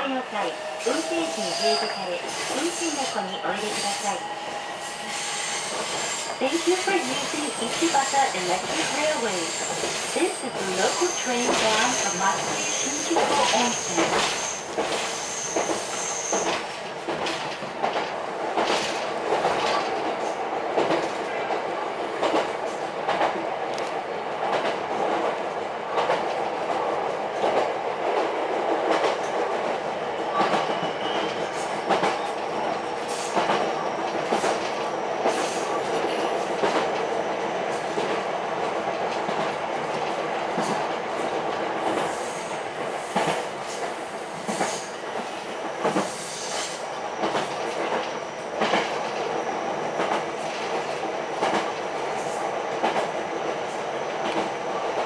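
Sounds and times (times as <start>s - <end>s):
wheels rumbling on rail: 0.0s - 55.0s
high wheel squeals: 0.5s - 6.4s.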